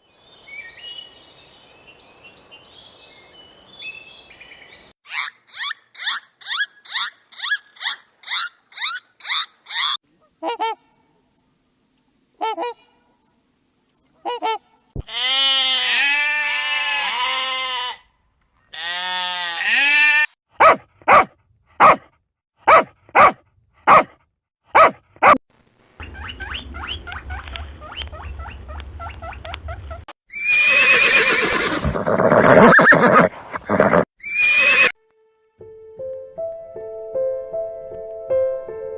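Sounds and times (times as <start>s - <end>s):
long rising and falling calls: 30.3s - 34.9s.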